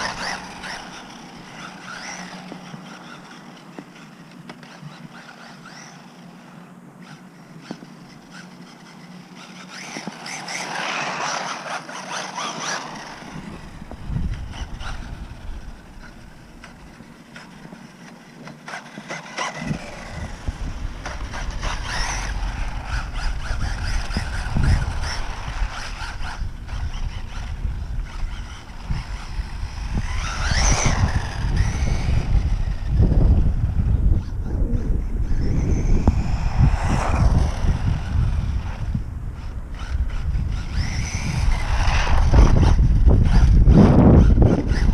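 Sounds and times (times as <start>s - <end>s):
electric toy truck motor whine: 0.0s - 44.9s
low microphone rumble: 28.8s - 44.9s.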